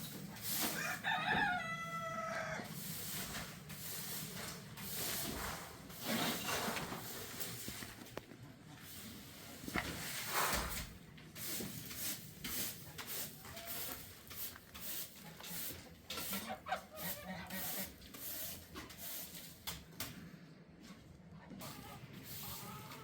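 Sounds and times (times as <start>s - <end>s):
rustling and handling noises: 3.0s - 8.4s
poultry calling: 16.3s - 17.9s.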